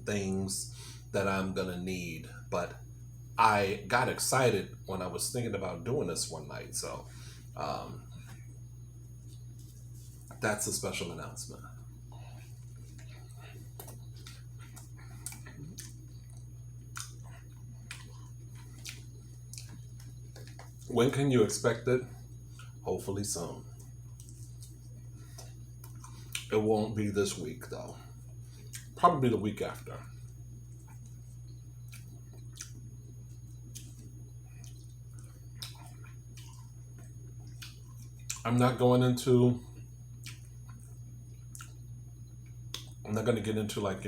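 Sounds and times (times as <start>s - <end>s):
steady low hum: 0.0s - 44.0s
chewing with wet mouth smacks: 12.2s - 20.9s, 22.5s - 22.8s, 23.7s - 26.6s, 28.2s - 29.0s, 30.2s - 38.5s, 39.8s - 43.0s.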